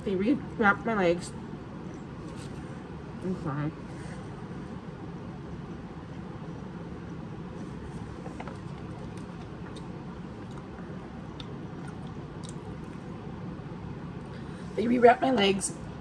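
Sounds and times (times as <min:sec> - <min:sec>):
steady low hum: 0:00.0 - 0:16.0
quiet chewing: 0:08.3 - 0:13.2.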